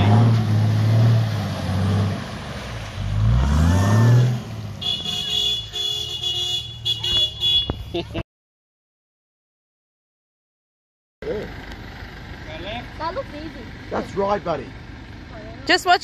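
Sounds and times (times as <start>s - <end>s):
vehicle engine revving: 0.0s - 5.7s.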